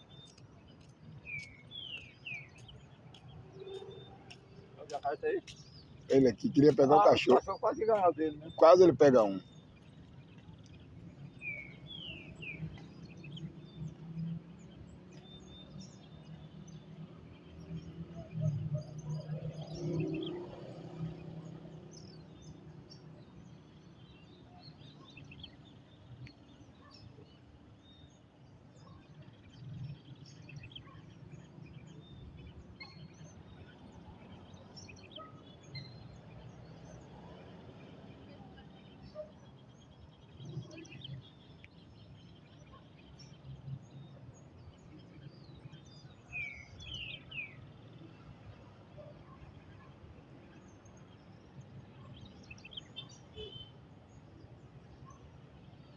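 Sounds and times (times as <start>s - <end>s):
birds chirping: 0.0s - 55.9s.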